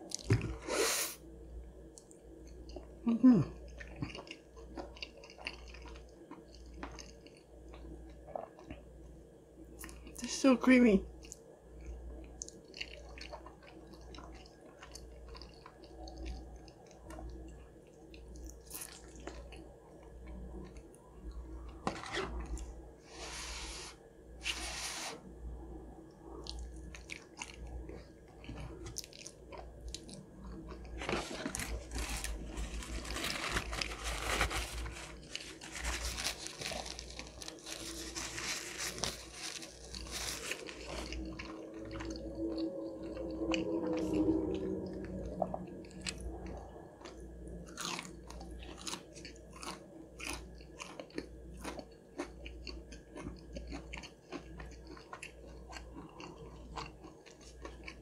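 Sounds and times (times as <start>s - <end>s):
wet sticky chewing: 34.8s - 58.0s.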